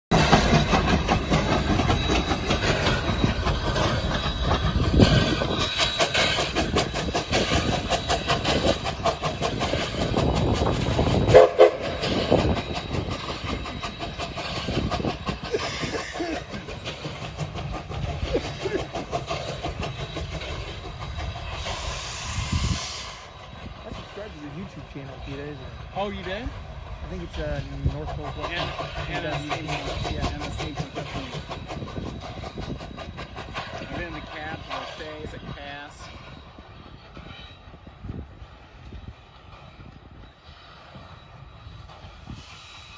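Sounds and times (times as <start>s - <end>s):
train rumble: 0.1s - 42.9s
train wheel clicks on rail joints: 0.2s - 18.2s
train horn blast: 11.3s - 11.8s.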